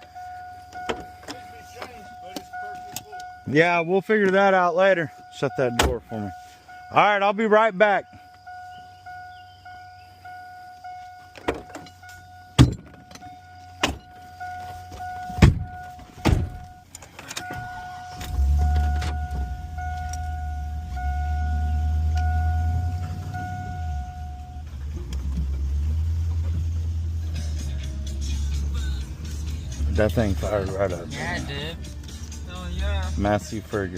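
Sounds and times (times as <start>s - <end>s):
vehicle warning beeper: 0.0s - 24.9s, 28.8s - 33.9s
clunks and knocks: 0.7s - 3.3s, 5.7s - 6.1s, 11.2s - 26.8s
engine starting and idling: 14.0s - 33.9s.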